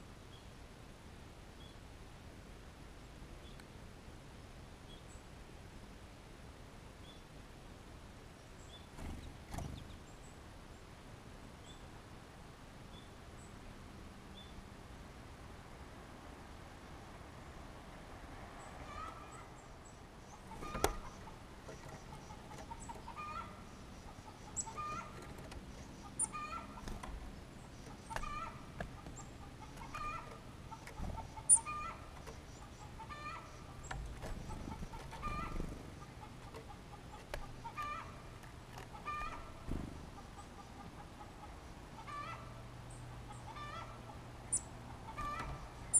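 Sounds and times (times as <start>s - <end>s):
bird clucking call: 20.3s - 42.6s, 43.2s - 45.9s.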